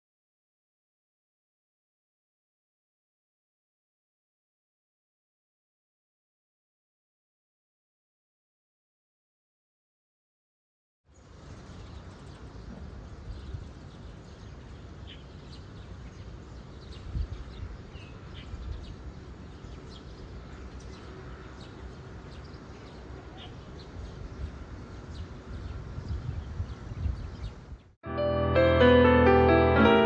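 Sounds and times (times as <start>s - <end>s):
birds chirping: 11.1s - 28.0s.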